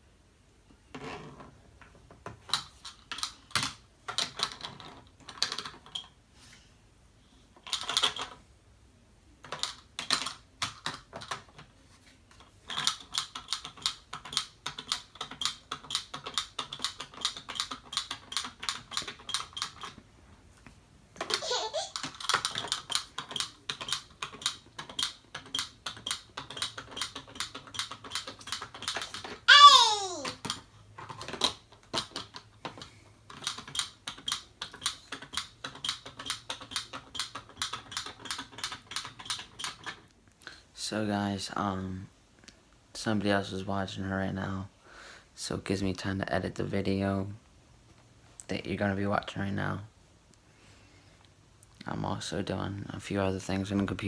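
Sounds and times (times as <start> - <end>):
keyboard typing: 22.0 - 29.3.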